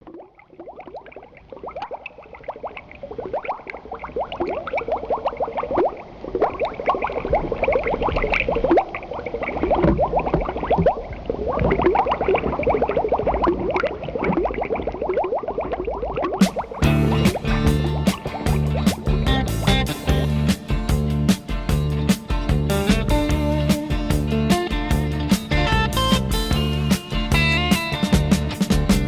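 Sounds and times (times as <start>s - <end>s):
water bubbling and gurgling: 0.0s - 21.1s
low rumble: 16.8s - 25.9s.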